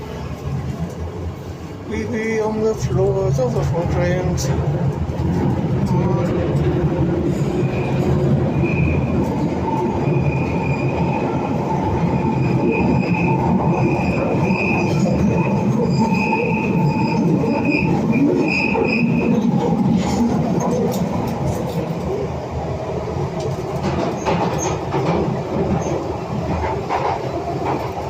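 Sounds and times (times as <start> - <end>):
train rumbling on track: 0.0 - 28.0
high wheel squeal: 12.1 - 19.4
wheels clicking over rail joints: 23.4 - 28.0.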